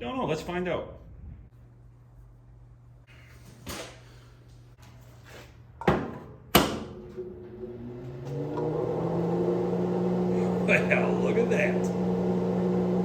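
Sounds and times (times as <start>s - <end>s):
welder humming: 7.4s - 13.0s.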